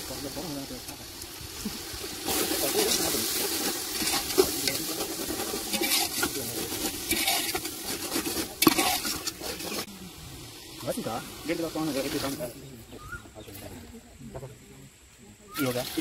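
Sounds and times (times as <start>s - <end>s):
chicken sizzling in hot oil: 0.0s - 12.7s, 15.5s - 16.0s
metal ladle scraping pot: 2.2s - 9.9s.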